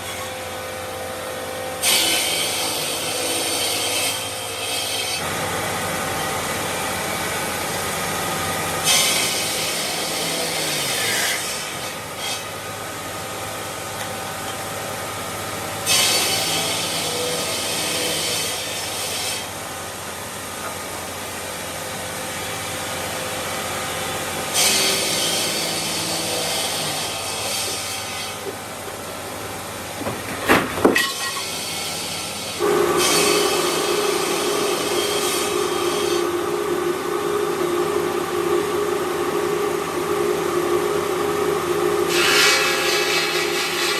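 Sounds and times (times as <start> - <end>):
machinery humming: 22.0 - 43.8.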